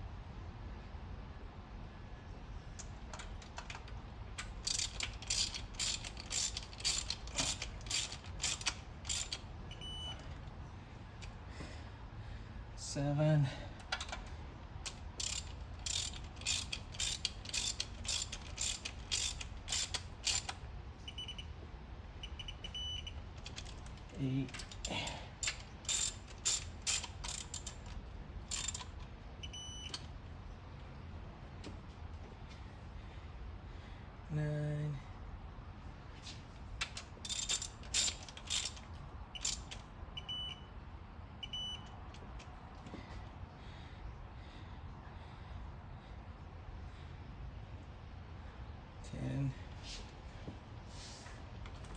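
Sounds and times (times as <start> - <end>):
ratchet wrench clicking: 2.8 - 9.5, 13.9 - 14.2, 14.8 - 20.6, 22.7 - 29.1, 36.8 - 39.9.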